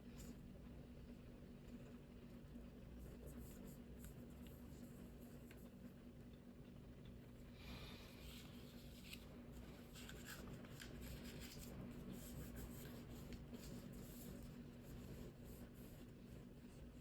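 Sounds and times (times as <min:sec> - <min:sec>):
low steady hum: 0:00.0 - 0:17.0
paper rustling and crinkling: 0:08.2 - 0:17.0.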